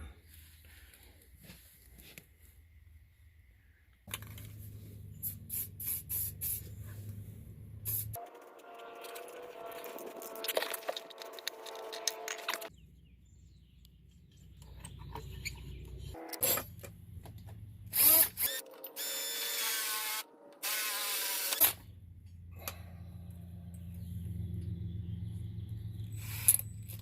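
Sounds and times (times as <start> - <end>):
low hum: 4.1 - 18.0, 21.8 - 27.0
power tool running: 8.2 - 12.7, 17.9 - 21.8.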